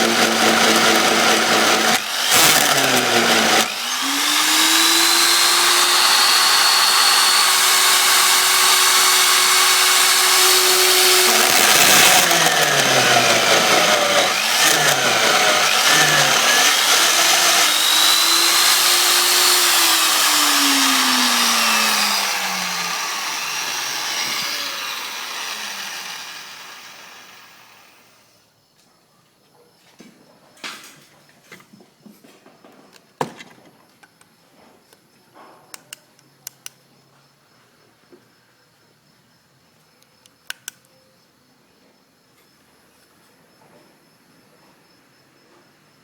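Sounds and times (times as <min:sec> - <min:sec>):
drill motor with hole saw cutting: 0:00.0 - 0:28.2.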